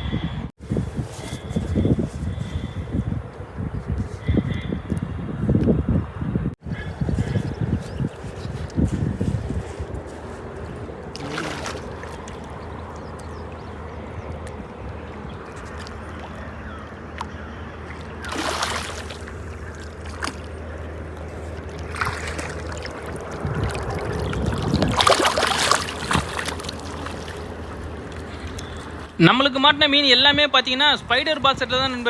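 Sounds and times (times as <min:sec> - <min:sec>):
steady low hum: 0:00.0 - 0:29.7
water sloshing and splashing: 0:06.7 - 0:29.2.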